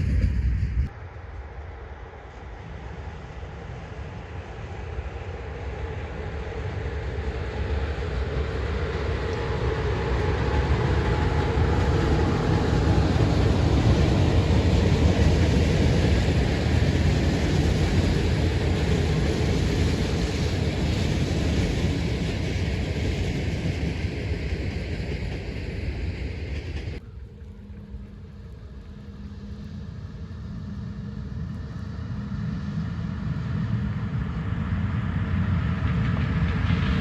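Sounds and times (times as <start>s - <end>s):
train passing on track: 0.0s - 37.0s.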